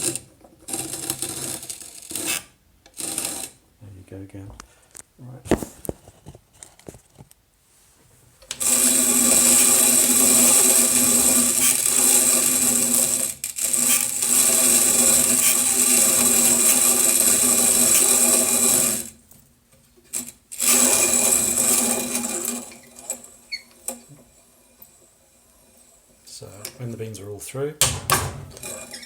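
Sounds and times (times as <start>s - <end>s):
hand coffee grinder grinding: 0.0s - 3.6s, 8.5s - 19.2s, 20.1s - 24.3s
grinder mechanism squeaking: 20.6s - 24.1s, 28.5s - 29.0s.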